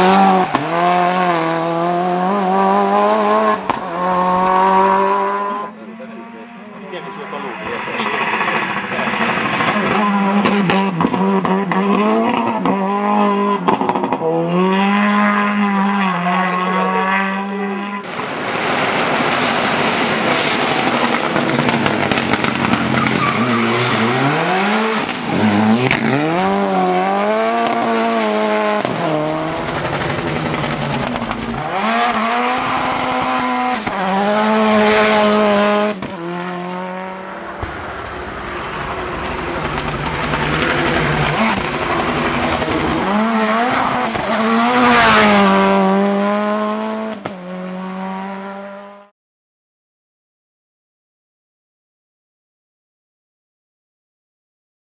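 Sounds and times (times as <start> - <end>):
rally car engine revving: 0.0 - 49.1
tyre squeal: 7.4 - 10.8, 22.7 - 25.9, 28.8 - 30.0, 33.6 - 34.1, 41.3 - 42.1, 43.6 - 44.4.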